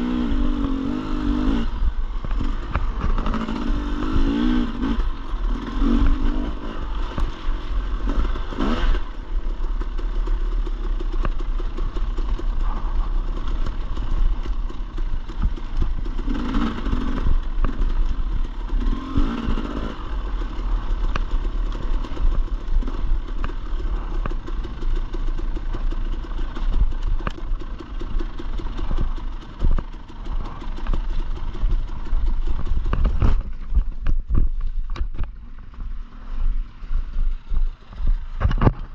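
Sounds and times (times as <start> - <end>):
dirt bike engine revving: 0.0 - 27.0
bike rattling over rough ground: 0.0 - 38.9.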